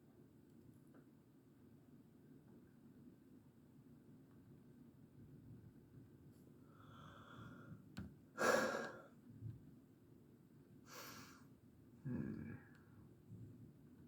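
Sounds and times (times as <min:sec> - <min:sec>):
person breathing: 0:06.7 - 0:07.8, 0:08.4 - 0:09.1, 0:10.9 - 0:11.4.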